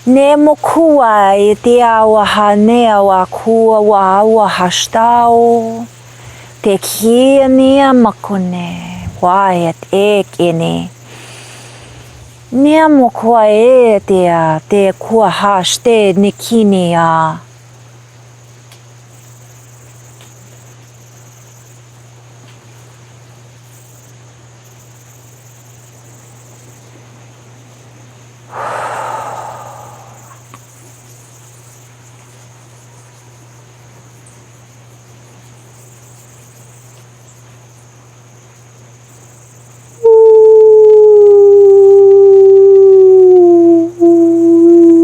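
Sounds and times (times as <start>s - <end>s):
steady high buzz: 0.0s - 22.3s, 23.6s - 30.8s
river water hissing: 11.0s - 12.6s, 28.5s - 30.5s
woman singing long sliding tone: 28.5s - 30.4s, 40.0s - 45.0s.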